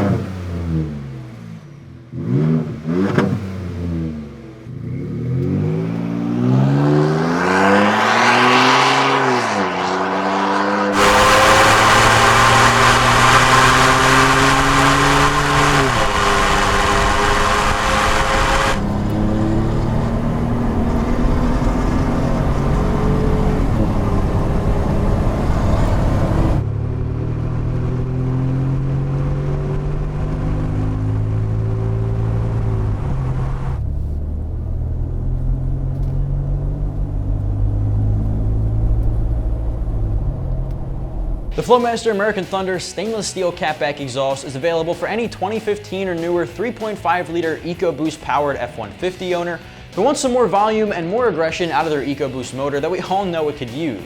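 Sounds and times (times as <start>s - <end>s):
truck engine accelerating: 2.1s - 41.8s.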